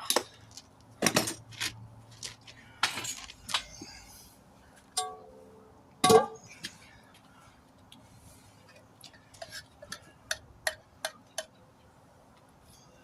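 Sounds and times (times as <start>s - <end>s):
hammer clanging on steel rim: 5.0s - 5.4s, 6.0s - 6.4s.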